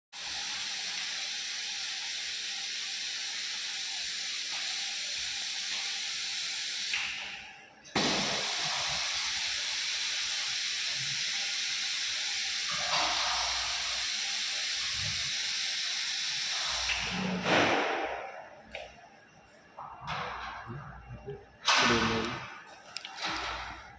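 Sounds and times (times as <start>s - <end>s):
steady hiss: 8.0s - 17.0s.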